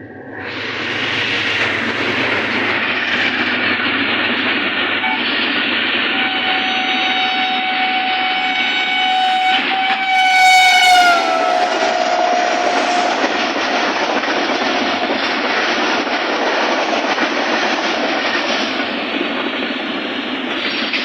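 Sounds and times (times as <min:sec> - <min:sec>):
train wheels rushing on rails: 0:00.0 - 0:21.0
steady train horn: 0:05.0 - 0:13.6.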